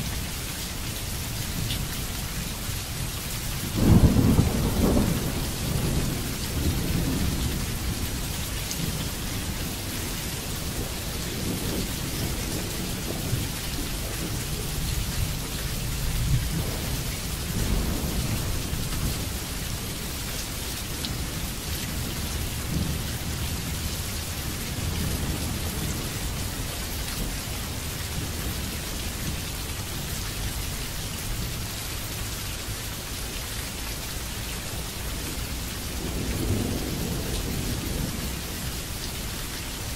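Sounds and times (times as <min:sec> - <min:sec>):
steady rain falling: 0:00.0 - 0:39.9
low thunder rumbling: 0:03.6 - 0:30.1, 0:35.2 - 0:38.8.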